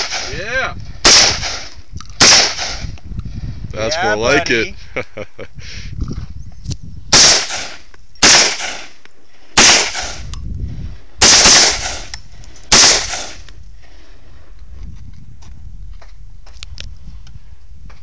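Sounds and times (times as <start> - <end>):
rifle shots: 0.0 - 0.4, 1.0 - 2.9, 7.1 - 9.0, 9.6 - 10.3, 11.2 - 12.1, 12.7 - 13.4.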